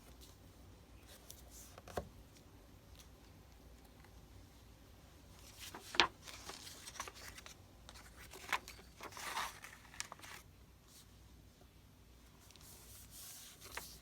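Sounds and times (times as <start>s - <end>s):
paper rustling and scraping: 5.4s - 10.5s, 12.4s - 14.0s.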